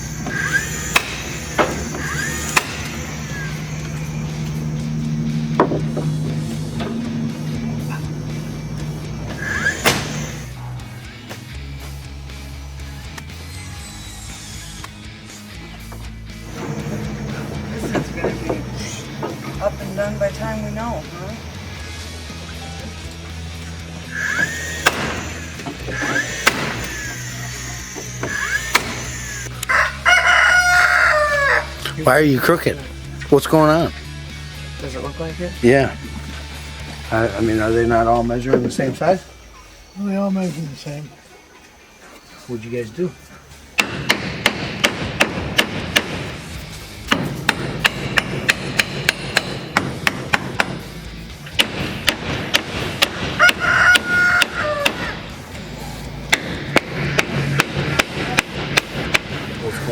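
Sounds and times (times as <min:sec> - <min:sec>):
rising motor whine: 0:00.0 - 0:43.8
nail gun firing: 0:00.1 - 0:10.6, 0:24.2 - 0:29.6, 0:43.8 - 0:55.2, 0:56.3 - 0:59.6
hammer blows on wood: 0:24.1 - 0:29.5, 0:43.8 - 0:59.6
rooster crowing: 0:29.3 - 0:31.9, 0:53.3 - 0:55.4.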